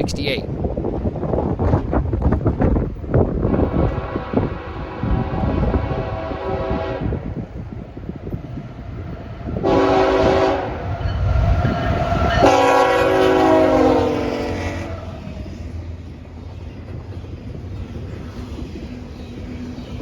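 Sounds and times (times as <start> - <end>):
passing train rumble: 0.0 - 20.0
locomotive air horn blasts: 3.5 - 7.3, 9.6 - 10.8, 12.4 - 14.9.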